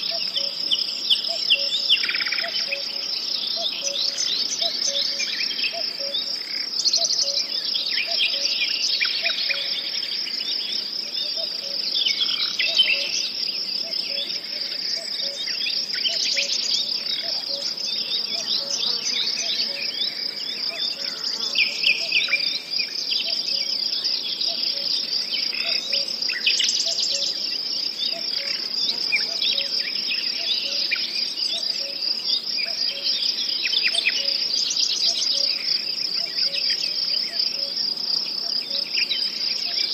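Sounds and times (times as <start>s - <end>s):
crickets trilling: 0.0s - 39.9s
bird chirps: 24.4s - 27.4s.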